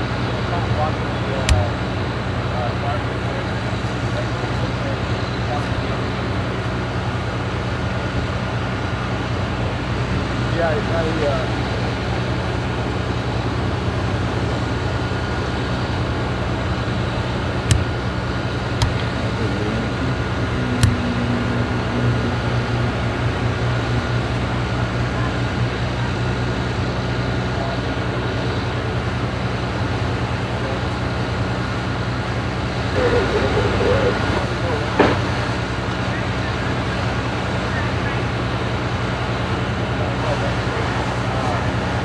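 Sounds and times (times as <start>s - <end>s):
engine running with low hum: 0.0s - 42.0s
sharp pops: 1.4s - 1.8s, 17.6s - 18.1s, 18.8s - 19.2s, 20.7s - 21.2s.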